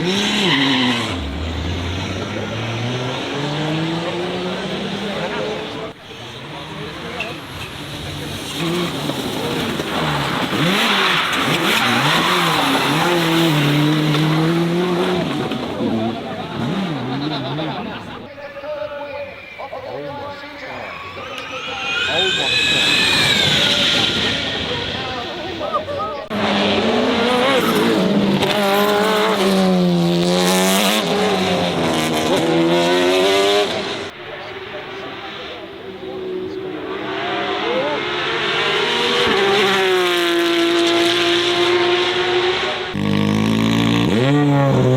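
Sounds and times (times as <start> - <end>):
car engine revving: 0.0 - 18.3, 20.7 - 44.9
tyre noise: 0.0 - 18.3.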